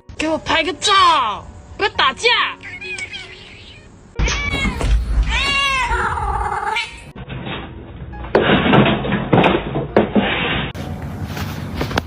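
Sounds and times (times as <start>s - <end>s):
cat meowing: 2.6s - 7.1s.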